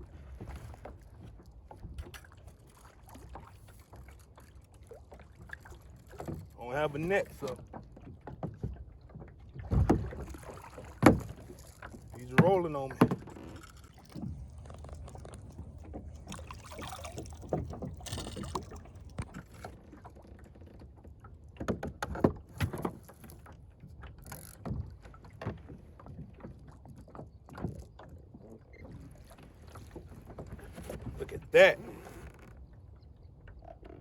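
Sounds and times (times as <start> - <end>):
knocks and thumps on plastic boat: 5.4 - 32.6
water splashing: 9.5 - 20.4.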